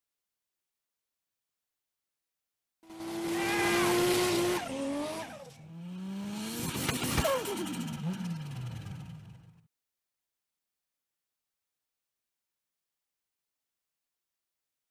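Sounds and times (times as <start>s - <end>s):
car engine revving hard: 2.9s - 9.4s.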